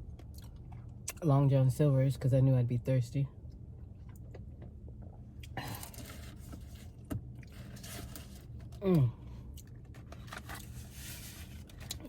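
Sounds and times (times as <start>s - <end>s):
person humming mm: 8.8s - 9.2s.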